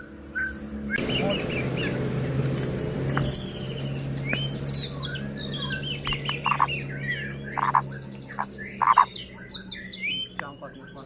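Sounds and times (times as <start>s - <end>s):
bird singing whistles: 0.0s - 11.0s
harsh rattling bird notes: 0.0s - 11.0s.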